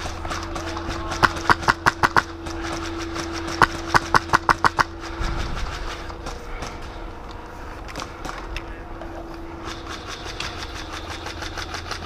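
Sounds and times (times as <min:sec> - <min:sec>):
airsoft rifle shots: 0:00.0 - 0:06.9
steady low hum: 0:00.0 - 0:12.0.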